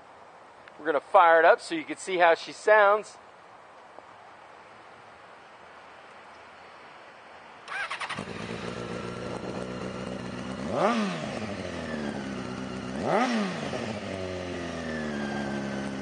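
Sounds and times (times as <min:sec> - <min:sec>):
motorcycle starter cranking: 0:07.7 - 0:10.1
motorcycle engine idling: 0:07.7 - 0:16.0
motorcycle engine revving: 0:07.7 - 0:16.0.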